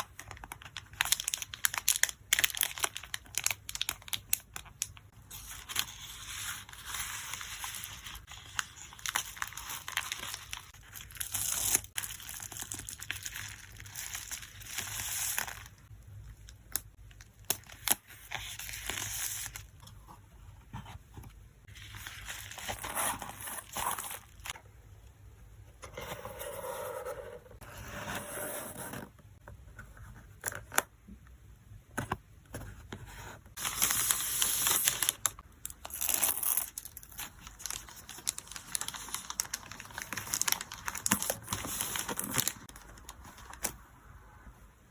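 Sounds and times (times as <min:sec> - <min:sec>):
packing materials crinkling: 0:00.0 - 0:15.8, 0:33.6 - 0:43.8.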